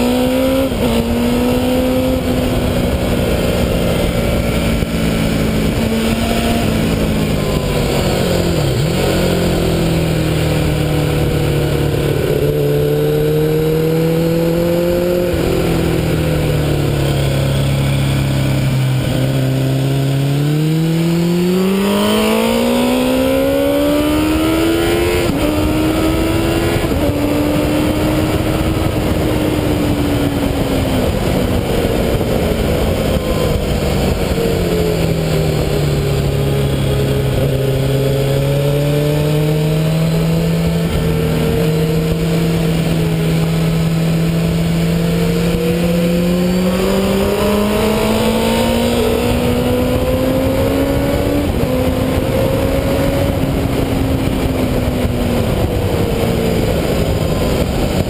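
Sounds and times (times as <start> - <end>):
motorcycle engine: 0.0 - 58.0
wind rush: 0.0 - 58.0.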